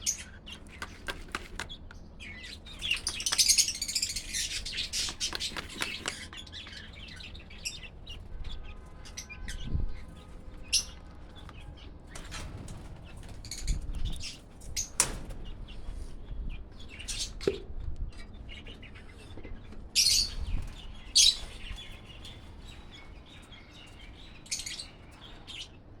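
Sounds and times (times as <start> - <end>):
small parrots chirping: 2.3 - 7.8.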